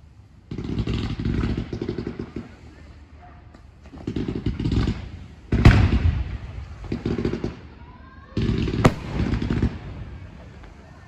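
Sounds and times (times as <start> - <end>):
firework bang: 8.9 - 10.2
firework sharp crack: 8.9 - 10.4.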